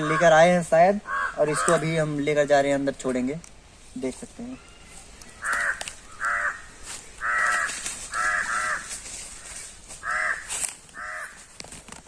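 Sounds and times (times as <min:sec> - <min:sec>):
crows cawing: 0:00.0 - 0:02.3, 0:04.5 - 0:11.6.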